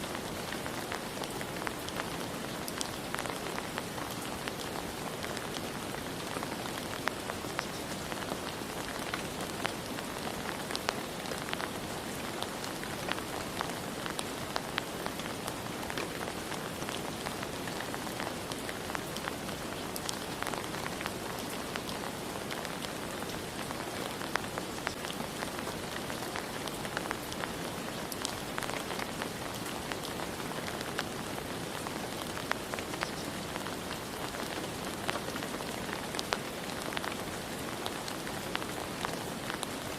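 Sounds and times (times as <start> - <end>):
rain falling: 0.0 - 39.9
raindrops pattering on a surface: 0.0 - 39.9.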